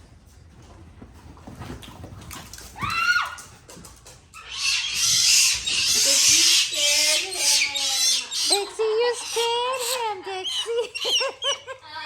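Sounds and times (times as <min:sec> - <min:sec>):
monkey screeching and squealing: 0:04.4 - 0:11.7.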